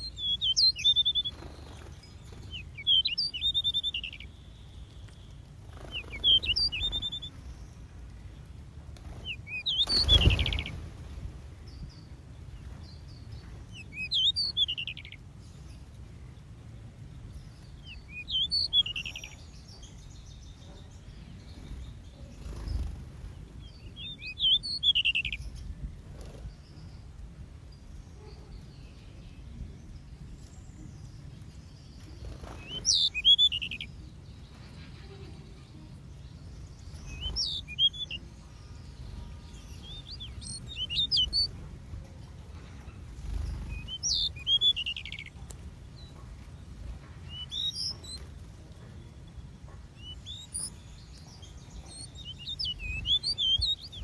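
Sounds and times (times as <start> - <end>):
songbirds chirping: 0.0 - 54.0
low background rumble: 28.8 - 54.0.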